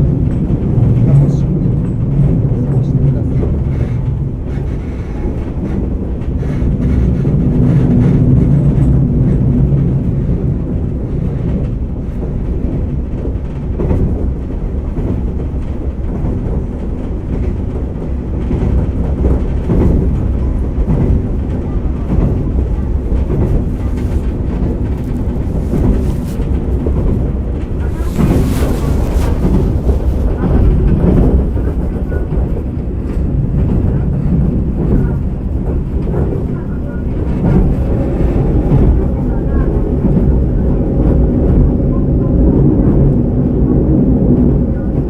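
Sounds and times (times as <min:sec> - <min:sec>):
muffled diesel railcar rumble: 0:00.0 - 0:45.0.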